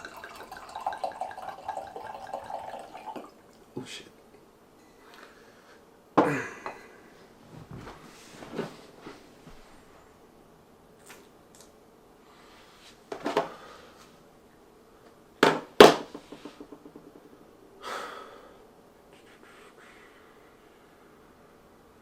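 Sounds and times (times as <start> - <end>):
breathy sounds: 17.8 - 18.7.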